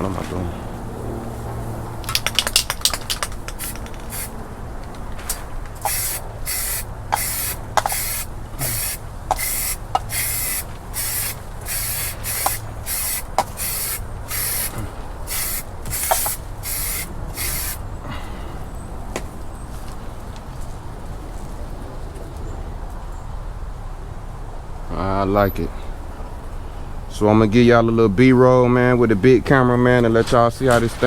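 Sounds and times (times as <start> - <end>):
aerosol can spraying: 2.1 - 4.4, 5.3 - 17.9.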